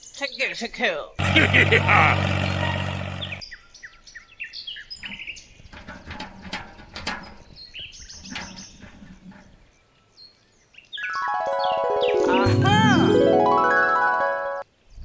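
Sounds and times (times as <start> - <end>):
small birds chirping: 0.0 - 6.1, 6.7 - 12.2.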